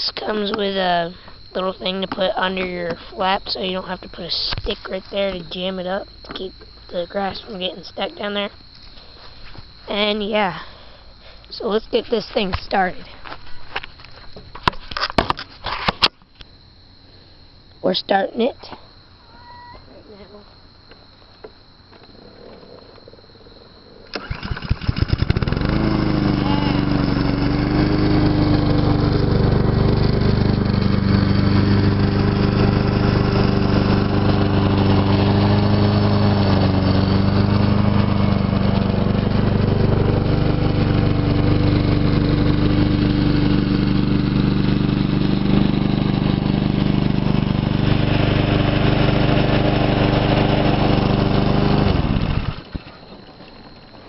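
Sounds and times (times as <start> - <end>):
lawn mower engine running: 24.1 - 54.0.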